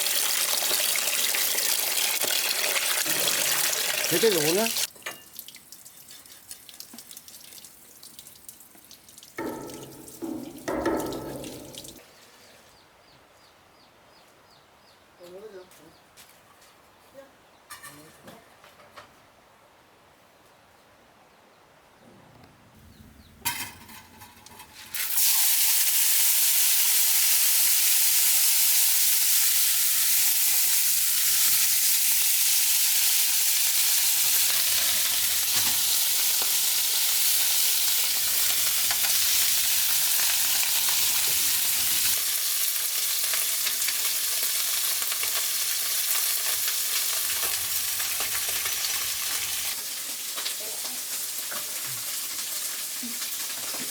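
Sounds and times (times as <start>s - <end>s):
food sizzling in hot oil: 0.0s - 5.6s, 9.4s - 12.0s, 24.6s - 53.9s
small knocks: 9.4s - 12.0s.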